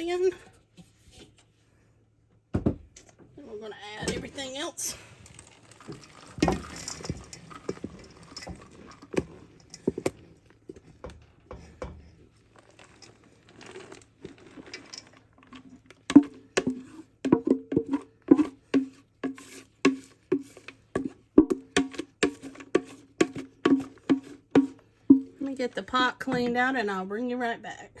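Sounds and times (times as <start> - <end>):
spoon scraping pot: 5.8 - 26.8.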